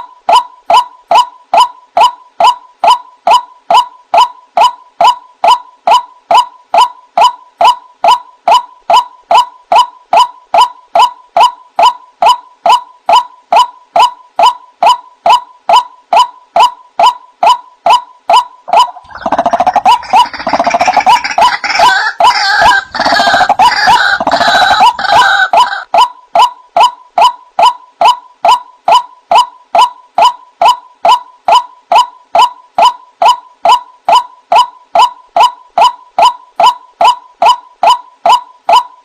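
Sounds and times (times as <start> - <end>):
bird repeated wak call: 0.3 - 38.9
overlapping croaking calls: 0.7 - 38.8.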